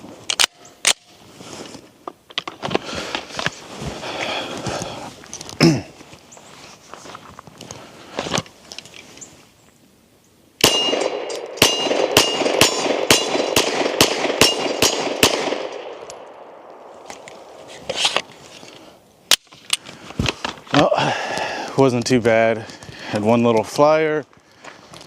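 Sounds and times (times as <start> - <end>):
pistol shots: 10.6 - 16.9.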